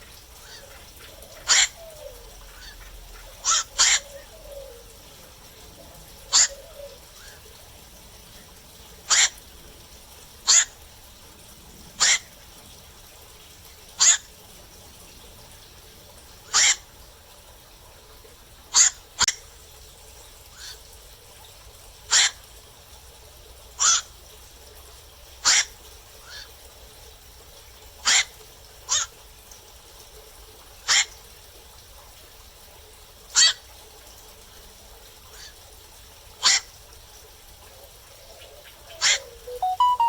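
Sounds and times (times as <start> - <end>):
heron kwak calls: 1.3 - 2.0, 3.4 - 4.2, 6.3 - 6.8, 9.1 - 9.4, 10.5 - 10.8, 12.0 - 12.3, 14.0 - 14.3, 16.5 - 16.8.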